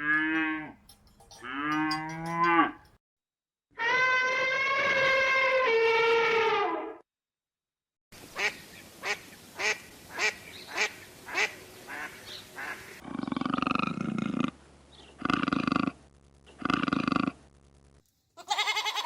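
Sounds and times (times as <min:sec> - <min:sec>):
long low bleating calls: 0:18.4 - 0:19.0.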